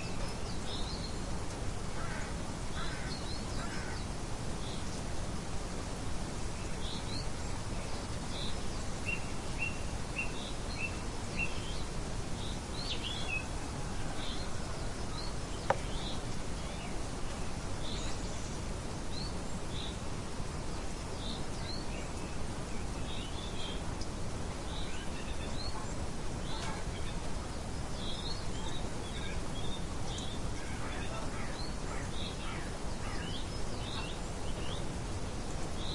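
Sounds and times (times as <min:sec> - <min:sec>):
rain hiss: 0:00.0 - 0:35.9
songbirds chirping: 0:00.0 - 0:35.9.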